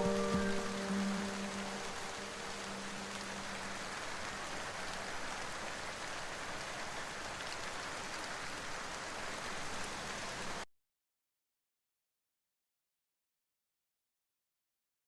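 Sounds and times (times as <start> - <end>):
soft background music: 0.0 - 3.8
steady rain hiss: 0.0 - 10.6.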